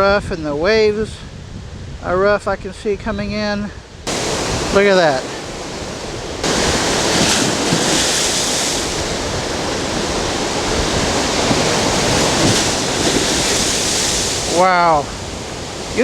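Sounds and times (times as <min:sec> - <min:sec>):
wind buffeting microphone: 0:00.0 - 0:16.0
waves breaking on shore: 0:04.1 - 0:16.0.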